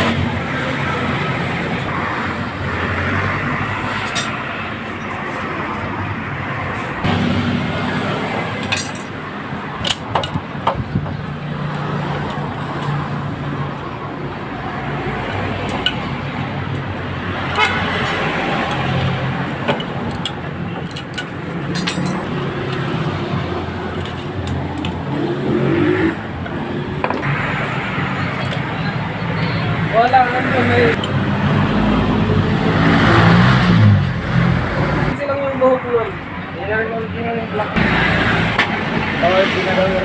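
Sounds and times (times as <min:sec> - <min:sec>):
sharp clicks and knocks: 0:09.8 - 0:13.0, 0:19.6 - 0:22.9.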